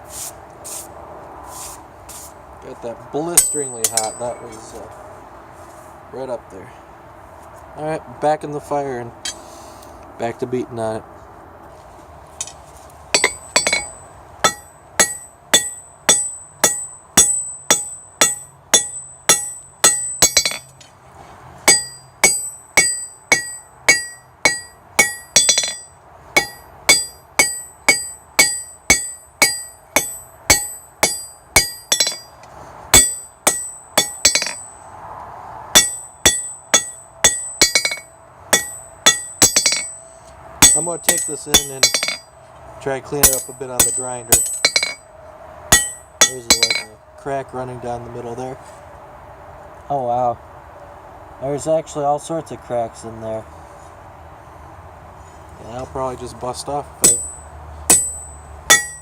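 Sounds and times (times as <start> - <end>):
hammer striking metal on anvil: 3.3 - 4.5, 13.2 - 20.7, 21.7 - 34.8, 35.7 - 40.0, 40.6 - 42.3, 43.2 - 45.0, 45.7 - 47.0, 57.0 - 59.0.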